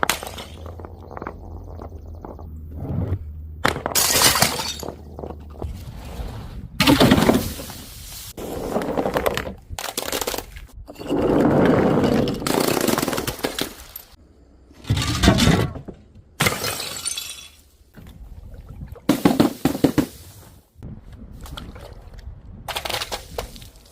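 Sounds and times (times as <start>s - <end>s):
glass bottles smashing: 3.9s - 5.0s, 16.4s - 17.7s.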